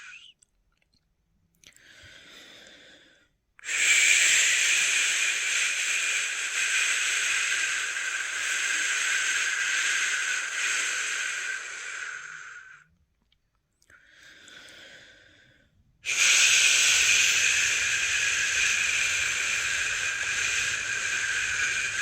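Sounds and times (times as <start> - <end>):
person shushing: 3.6 - 12.8, 16.0 - 22.0.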